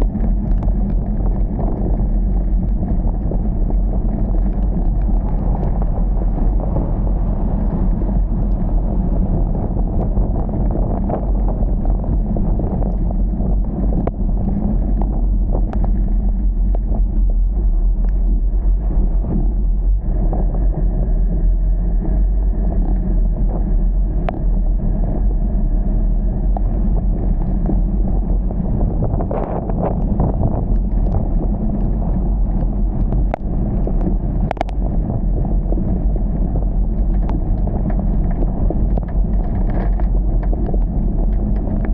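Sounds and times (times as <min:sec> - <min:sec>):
steady low rumble: 0:00.0 - 0:41.9
faint ticks: 0:29.4 - 0:34.8.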